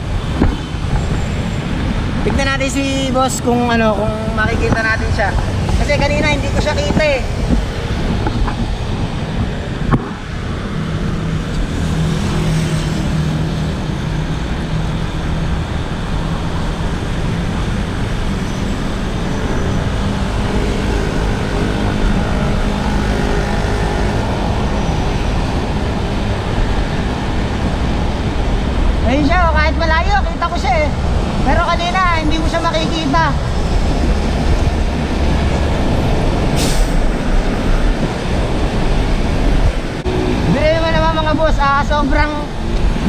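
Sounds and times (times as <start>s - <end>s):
road traffic passing: 0.0s - 43.0s.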